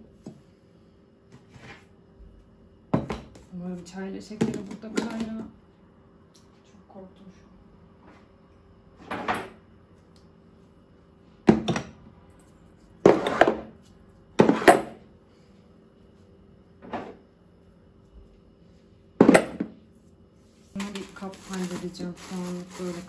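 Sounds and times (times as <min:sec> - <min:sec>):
containers scraping: 0:20.7 - 0:23.0.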